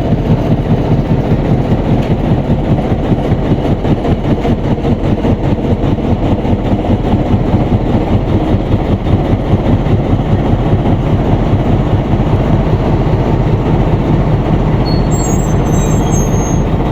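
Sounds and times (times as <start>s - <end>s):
train wheels rumbling on rail: 0.0s - 16.9s
high wheel squeal: 14.8s - 16.9s.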